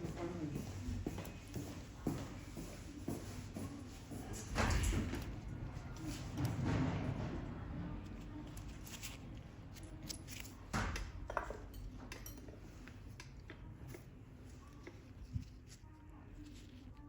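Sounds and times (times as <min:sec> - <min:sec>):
metal tools clicking and clinking: 0:11.3 - 0:13.3.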